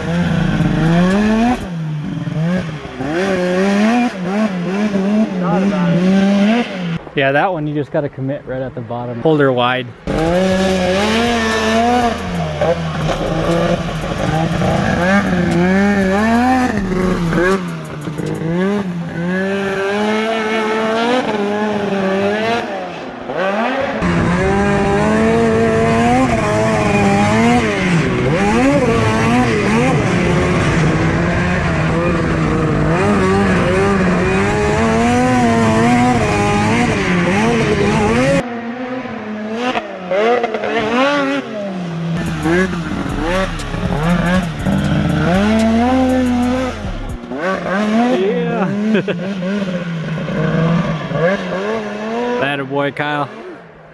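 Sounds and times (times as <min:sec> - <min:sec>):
snowmobile engine revving: 0:00.0 - 0:07.0, 0:10.1 - 0:38.4, 0:42.2 - 0:52.5.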